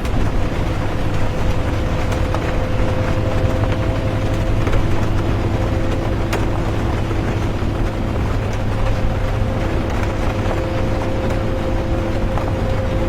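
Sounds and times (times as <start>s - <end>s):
bus engine and road rumble: 0.0s - 13.0s
faint hum: 0.0s - 13.0s
rain ticking on a bus: 0.0s - 13.0s.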